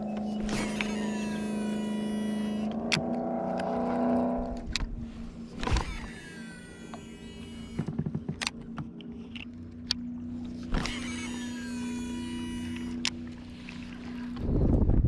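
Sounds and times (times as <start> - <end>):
reel cranking whir: 0.0 - 14.9
fishing reel spool whirring: 0.0 - 15.0
wind buffeting microphone: 14.2 - 15.0.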